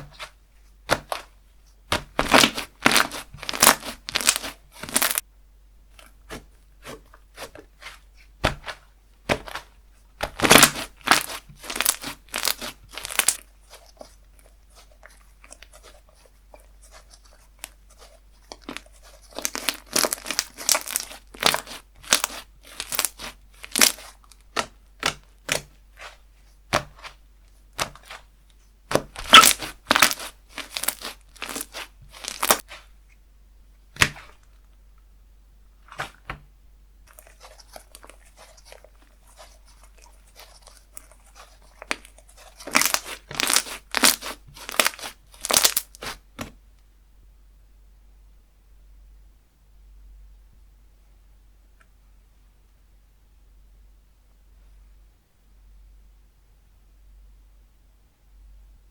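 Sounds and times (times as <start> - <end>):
hands squeezing sticky slime: 1.9 - 5.2, 6.0 - 28.3, 28.9 - 32.9, 35.8 - 36.3, 37.1 - 46.2.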